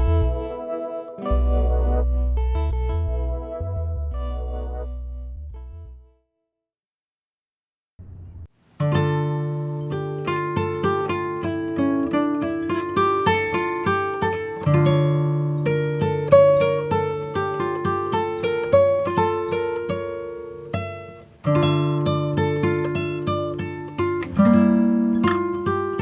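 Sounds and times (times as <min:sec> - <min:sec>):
acoustic guitar plucked notes: 0:08.8 - 0:26.0.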